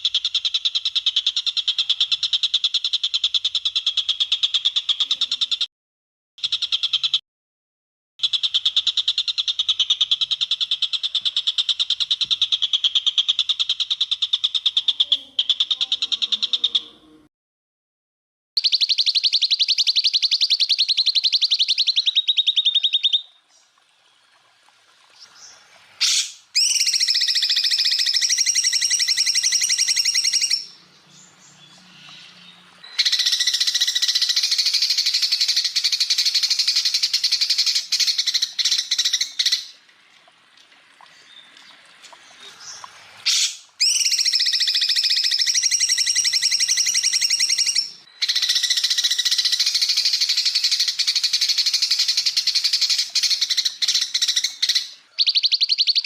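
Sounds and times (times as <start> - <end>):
bird singing rattling trills: 18.6 - 24.4, 25.1 - 39.8, 41.1 - 56.0.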